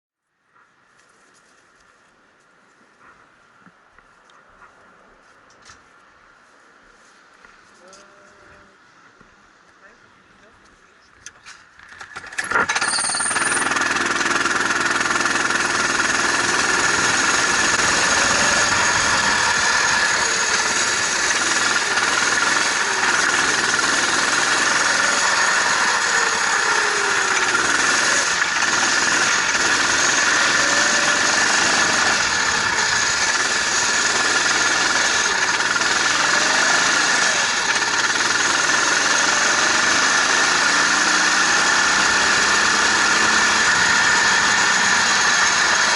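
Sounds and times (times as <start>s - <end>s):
engine starting and idling roughly: 11.9s - 45.9s.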